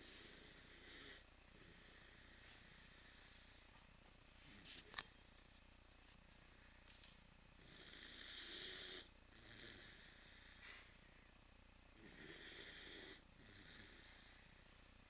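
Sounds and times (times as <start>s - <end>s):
dog snoring: 0.0s - 3.8s, 7.6s - 11.2s, 11.9s - 14.8s.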